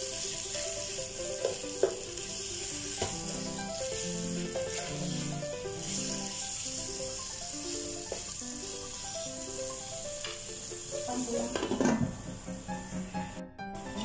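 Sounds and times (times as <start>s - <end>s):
background music: 0.0s - 14.0s
chicken and onions sizzling: 0.0s - 14.0s
spatula stirring in pot: 3.0s - 6.5s.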